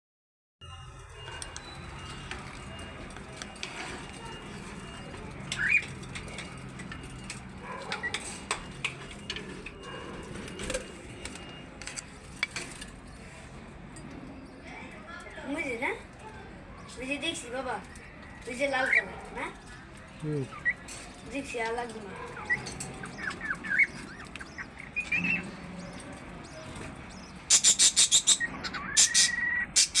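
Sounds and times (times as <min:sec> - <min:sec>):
bird chirps: 0:01.6 - 0:12.1, 0:18.8 - 0:30.0
harsh high bird calls: 0:22.2 - 0:30.0
whistled bird call: 0:26.5 - 0:30.0.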